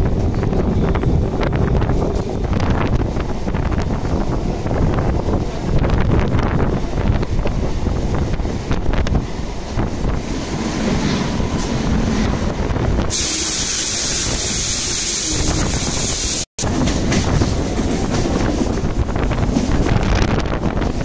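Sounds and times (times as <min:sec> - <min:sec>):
trains passing alongside: 0:00.0 - 0:21.0
wind rushing over microphone: 0:00.0 - 0:21.0
loud high hiss: 0:13.1 - 0:16.5.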